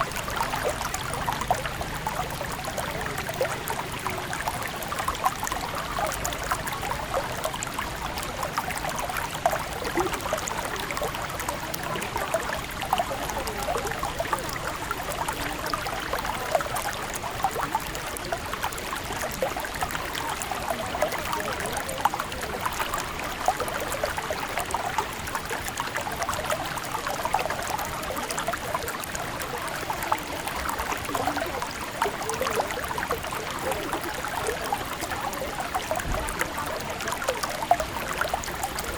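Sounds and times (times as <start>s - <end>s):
river water babbling: 0.0s - 38.9s.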